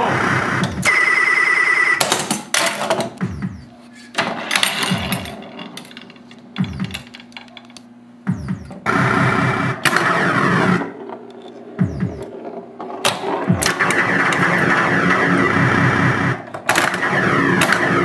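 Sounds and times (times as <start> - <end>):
pinball machine electronic effects: 0.0 - 18.0
noise bursts: 8.2 - 11.0, 11.7 - 18.0.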